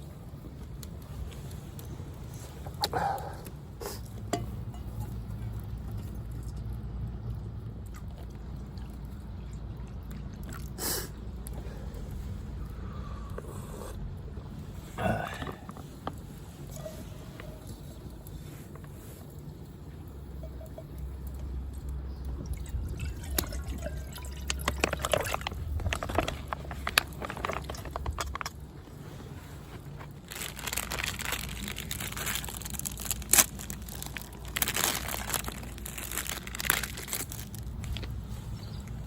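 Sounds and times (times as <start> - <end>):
water pouring: 19.3 - 28.6.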